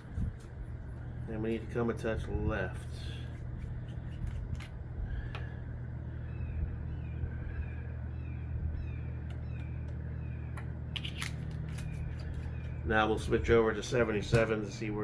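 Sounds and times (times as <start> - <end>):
steady low hum: 0.0 - 15.0
bird chirping: 5.0 - 11.1, 11.7 - 13.2.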